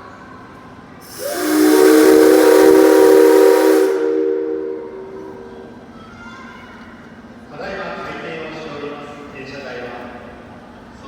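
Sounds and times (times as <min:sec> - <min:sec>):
hiss of escaping steam: 0:01.0 - 0:05.5
steam locomotive whistle: 0:01.0 - 0:05.9.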